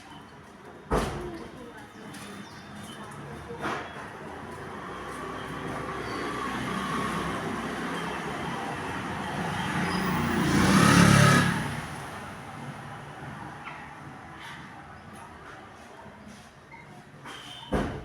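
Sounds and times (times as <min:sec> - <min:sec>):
road vehicle passing by: 0:04.4 - 0:14.2.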